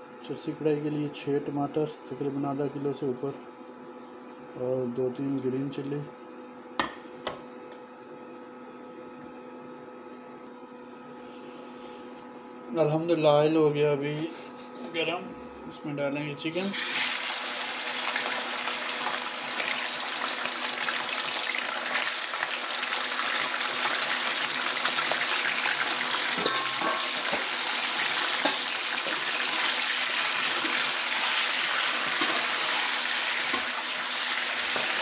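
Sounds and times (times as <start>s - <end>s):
chicken sizzling in hot oil: 16.5s - 35.0s.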